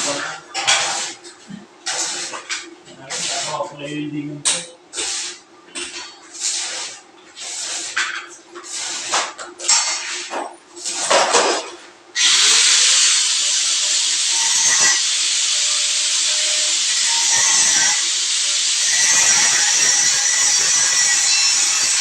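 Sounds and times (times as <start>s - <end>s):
high-pressure sprayer hissing: 12.2s - 22.0s.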